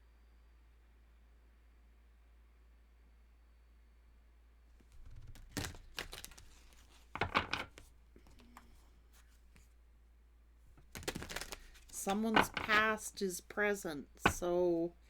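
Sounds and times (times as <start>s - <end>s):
cards rustling and tapping on table: 4.8s - 9.7s, 10.7s - 13.1s, 14.2s - 14.6s.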